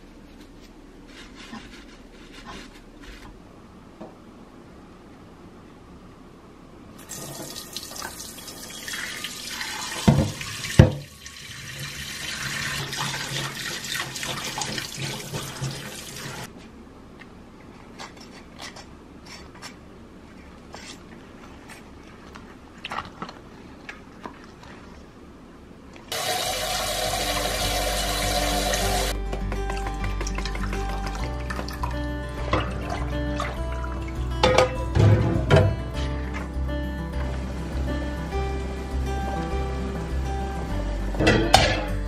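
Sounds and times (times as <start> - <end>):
tap running into a metal sink: 10.0 - 11.1.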